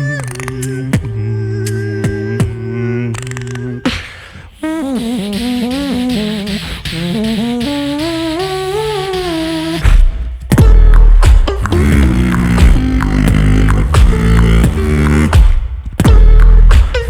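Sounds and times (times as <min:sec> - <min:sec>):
beatboxing clicks: 0:00.0 - 0:17.0
breathy hiss: 0:02.8 - 0:09.0
hummed bass drone: 0:10.6 - 0:17.0.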